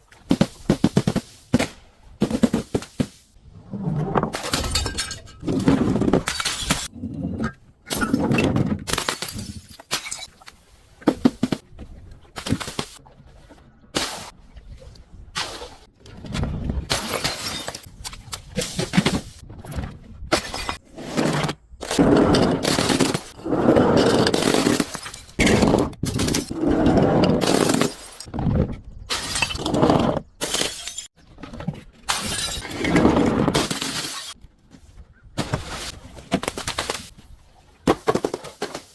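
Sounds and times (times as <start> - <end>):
glass bottles shattering and crunching: 4.4 - 10.4, 16.9 - 17.9, 22.0 - 26.5, 27.2 - 28.3, 29.1 - 31.1, 32.1 - 34.4.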